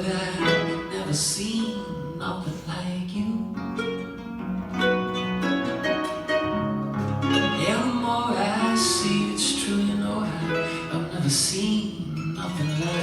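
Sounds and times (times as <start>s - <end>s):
person singing: 0.0s - 4.3s, 5.6s - 13.0s
acoustic guitar playing: 0.0s - 13.0s.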